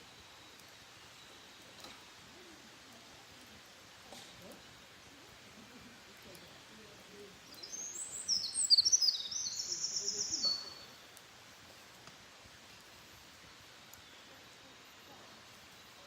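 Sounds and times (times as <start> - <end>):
songbird singing: 4.4 - 11.4.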